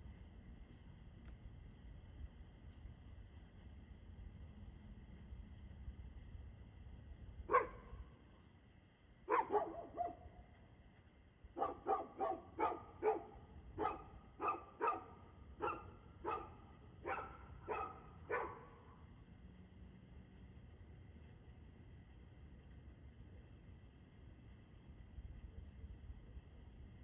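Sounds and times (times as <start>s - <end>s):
dog barking: 7.5s - 8.0s, 9.3s - 10.3s, 11.6s - 18.8s.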